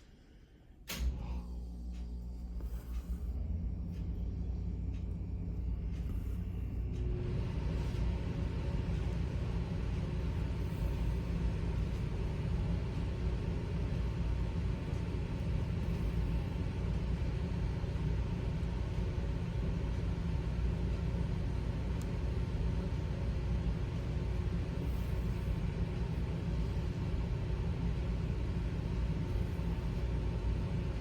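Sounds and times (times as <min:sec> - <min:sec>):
faint hum: 0:00.0 - 0:31.0
low rumble: 0:00.0 - 0:31.0.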